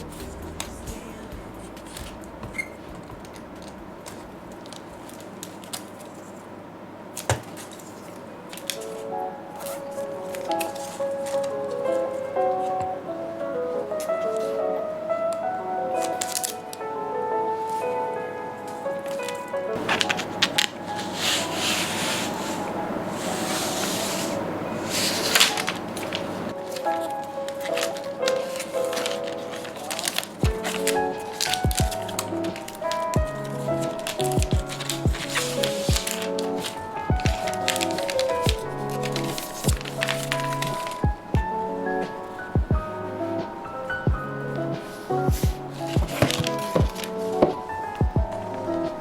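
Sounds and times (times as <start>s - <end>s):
objects rubbing and scraping: 19.8s - 26.6s.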